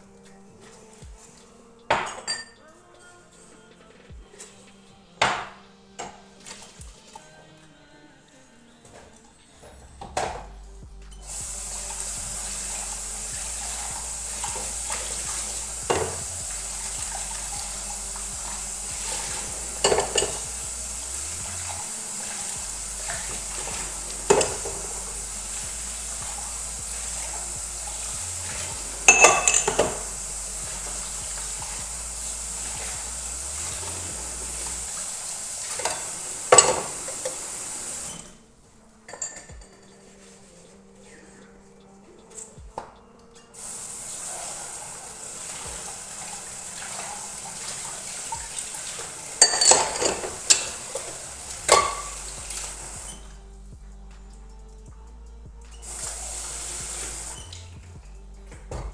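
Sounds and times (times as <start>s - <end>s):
crockery clinking: 0.6s - 4.6s, 8.8s - 38.4s, 39.0s - 40.4s, 43.2s - 53.4s, 55.8s - 57.8s
tap water running: 11.2s - 38.5s, 43.6s - 53.8s, 55.7s - 58.9s.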